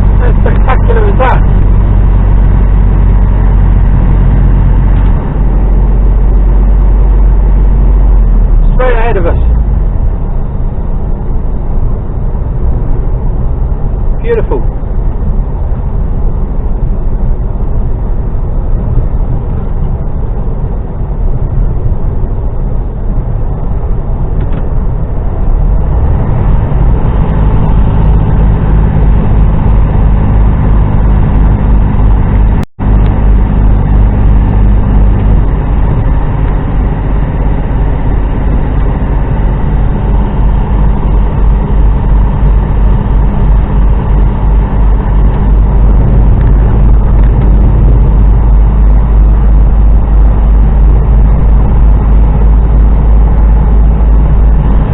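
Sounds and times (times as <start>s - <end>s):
road noise: 0.0s - 54.9s
truck diesel engine drone: 0.0s - 54.9s.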